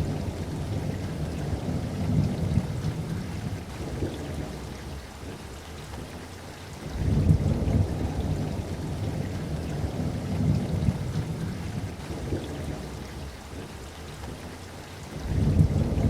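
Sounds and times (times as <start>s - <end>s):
rolling thunder: 0.0s - 5.0s, 6.9s - 13.4s, 15.2s - 16.0s
steady rainfall: 0.0s - 16.0s.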